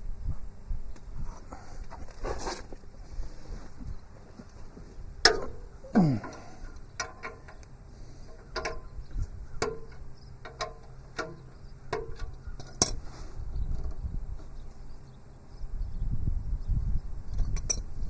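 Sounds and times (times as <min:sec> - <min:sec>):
wrench clinking on metal bolts: 0:09.6 - 0:13.0.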